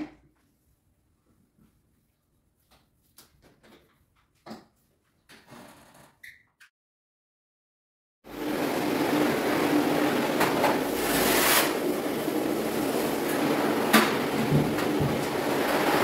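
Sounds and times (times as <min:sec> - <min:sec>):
vacuum cleaner humming: 0:08.3 - 0:16.0.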